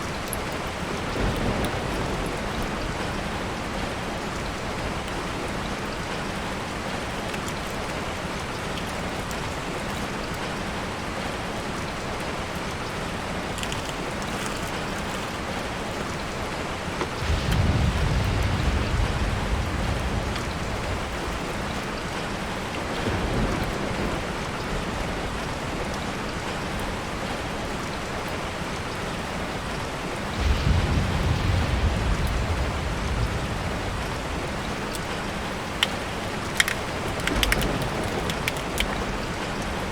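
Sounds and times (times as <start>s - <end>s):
rain on a tarp: 0.0s - 39.9s
low rumbles: 13.5s - 21.7s, 30.3s - 39.9s.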